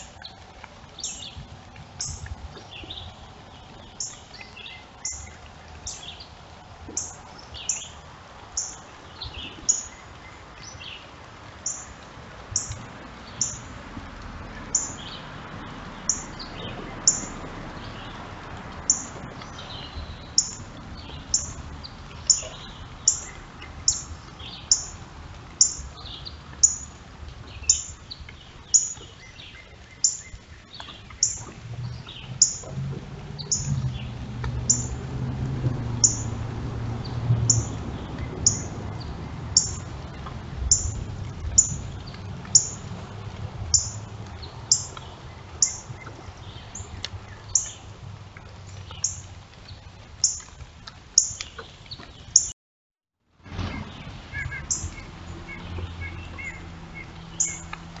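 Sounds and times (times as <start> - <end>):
bird chirping: 2.0 - 6.3, 6.9 - 8.0, 8.6 - 11.9, 12.5 - 13.7, 14.7 - 15.3, 15.9 - 18.2, 18.9 - 25.0, 25.6 - 32.8, 33.4 - 35.0, 36.0 - 36.4, 37.5 - 39.9, 40.7 - 42.8, 43.7 - 47.9, 53.7 - 57.7
other birds calling: 18.8 - 25.0, 25.6 - 32.8, 33.4 - 35.0, 36.0 - 36.3, 37.4 - 42.9, 53.6 - 57.7
low rumble: 30.5 - 47.3.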